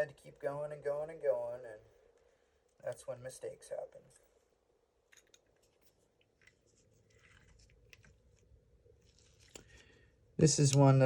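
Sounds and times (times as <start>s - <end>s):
rustling of small parts: 5.0s - 10.8s.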